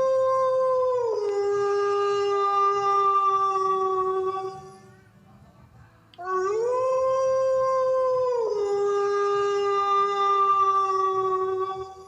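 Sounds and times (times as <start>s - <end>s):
wolf howling: 6.2s - 12.0s.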